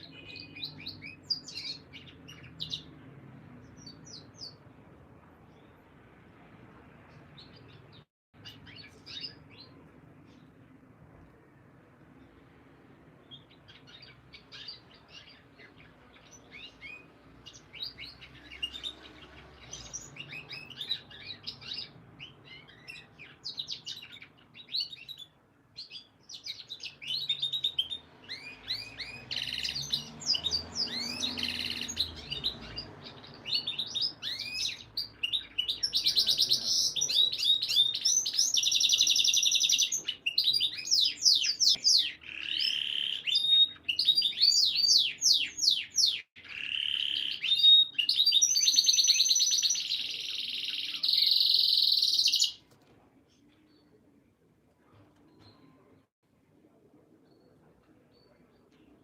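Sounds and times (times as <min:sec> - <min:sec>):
canary singing: 0:00.0 - 0:04.8, 0:07.1 - 0:10.6, 0:13.1 - 0:52.7.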